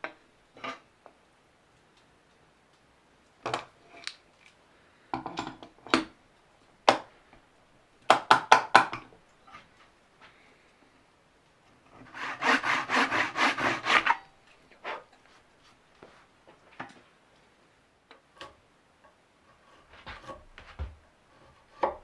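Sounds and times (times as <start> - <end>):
hand tools knocking on wood: 8.1 - 9.0.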